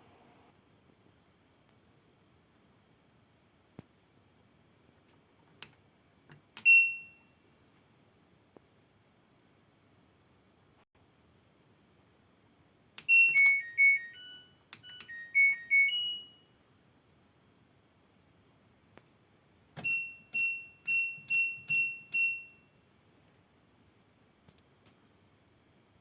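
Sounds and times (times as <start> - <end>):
electronic beep tune: 13.1 - 16.4
high beeps: 13.1 - 16.4.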